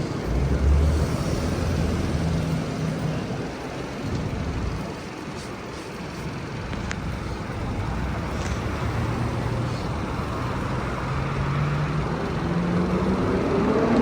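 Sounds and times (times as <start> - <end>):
street traffic noise: 0.0 - 14.0
vehicle engine speeding up: 8.9 - 14.0.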